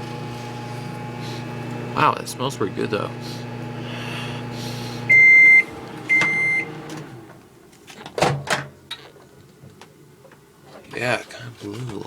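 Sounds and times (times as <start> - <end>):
microwave oven humming: 0.0 - 7.7
microwave beeps: 5.0 - 6.9.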